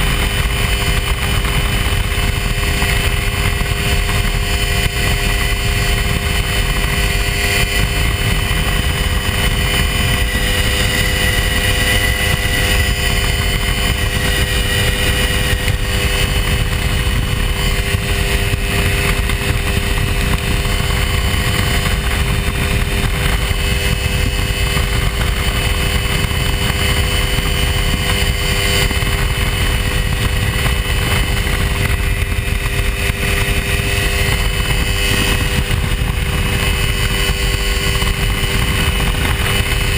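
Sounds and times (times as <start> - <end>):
aircraft engine droning: 0.0 - 39.9
wind rumble on microphone: 0.0 - 39.9.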